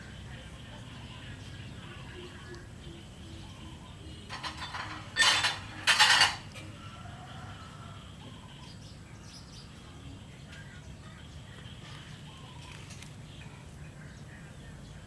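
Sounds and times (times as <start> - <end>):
short clattering noises: 4.3 - 6.5.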